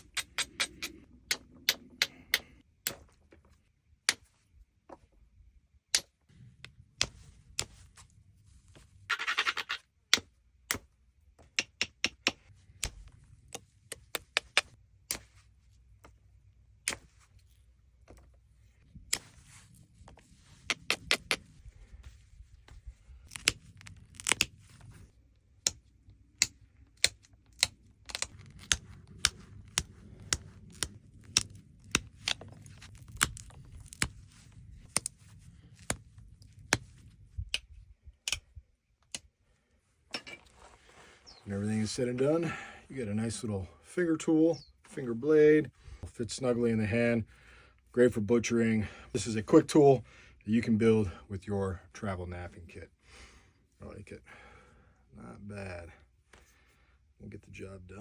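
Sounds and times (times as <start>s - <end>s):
stone clicking on stone: 0.0s - 3.1s, 5.9s - 7.7s, 9.1s - 15.2s, 22.7s - 24.9s, 25.6s - 34.2s, 37.5s - 39.3s.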